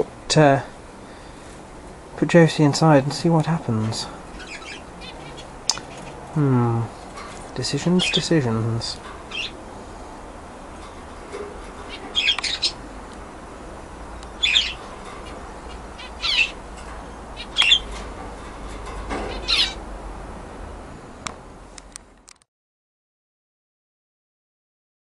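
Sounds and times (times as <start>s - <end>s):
budgerigar chirping: 4.4s - 6.2s, 9.3s - 9.6s, 11.8s - 12.8s, 14.2s - 18.0s, 19.2s - 19.8s.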